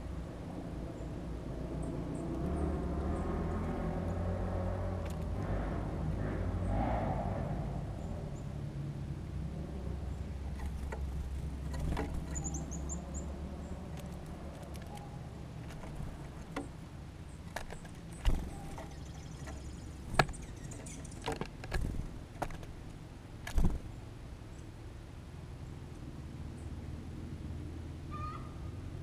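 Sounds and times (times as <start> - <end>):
birds pecking and landing taps: 2.2 - 3.8, 5.0 - 5.5, 10.4 - 24.0
bird chirps: 10.1 - 22.0.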